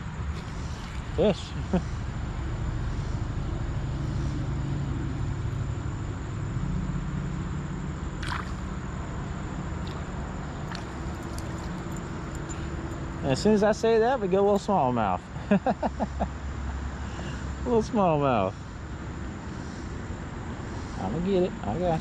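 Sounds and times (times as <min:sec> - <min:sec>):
creek water flowing: 0:00.1 - 0:02.1, 0:09.8 - 0:12.9.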